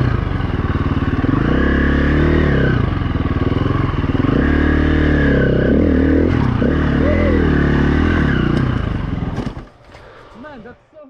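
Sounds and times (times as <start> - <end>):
dirt bike engine under load: 5.6 - 11.0.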